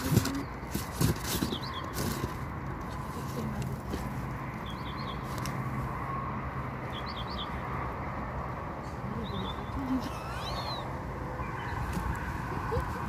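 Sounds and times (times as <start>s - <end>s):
small bird chirping: 6.9s - 7.6s, 9.1s - 11.8s.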